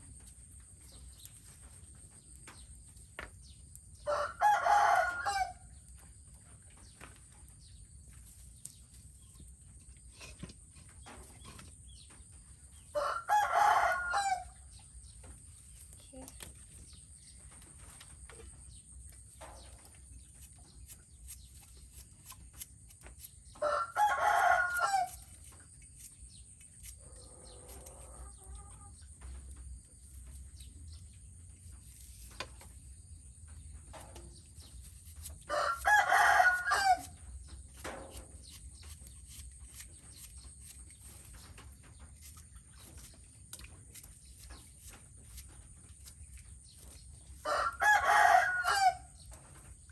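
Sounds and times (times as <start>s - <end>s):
rooster crowing: 4.0s - 5.7s, 12.9s - 14.6s, 23.6s - 25.2s, 35.5s - 37.1s, 47.4s - 49.2s.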